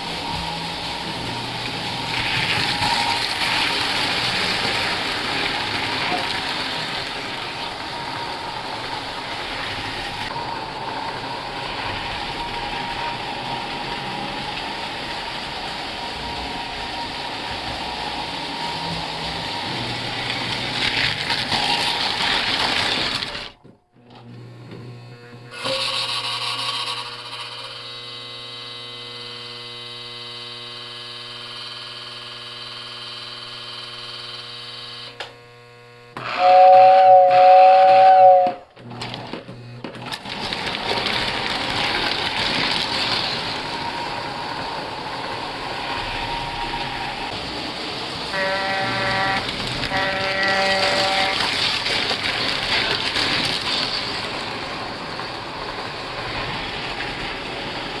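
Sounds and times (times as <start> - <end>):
model train rolling and motor noise: 0.0 - 58.0
many-toned hum: 23.6 - 58.0
loud two-note horn: 36.2 - 38.7, 48.2 - 51.6.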